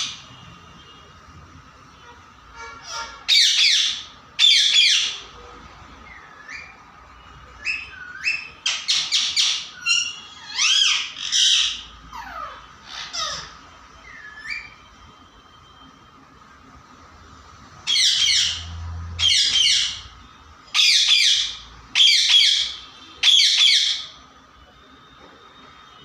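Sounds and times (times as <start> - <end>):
parrot calling and chirping: 0.0 - 0.3, 2.6 - 5.4, 6.0 - 15.0, 17.8 - 24.3.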